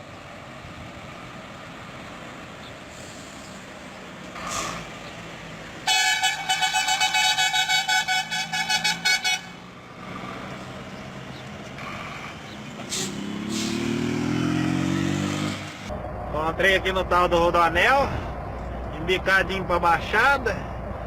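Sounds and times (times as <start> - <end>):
truck engine accelerating: 0.0 - 19.3
truck horn short toots: 5.8 - 9.6.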